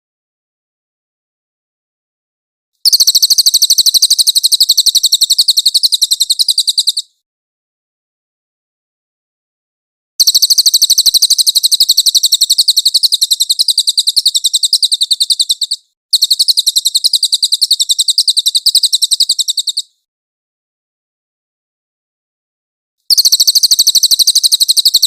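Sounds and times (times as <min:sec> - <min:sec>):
bird trilling: 0:02.8 - 0:07.1, 0:10.2 - 0:20.0, 0:23.1 - 0:25.0.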